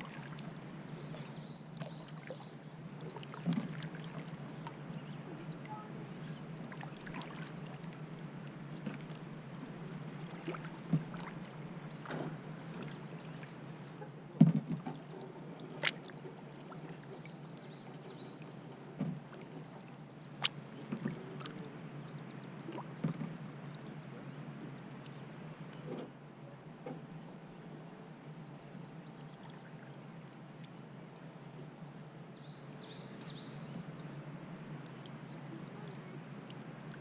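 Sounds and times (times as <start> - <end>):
paddle strokes through water: 0.0 - 27.2.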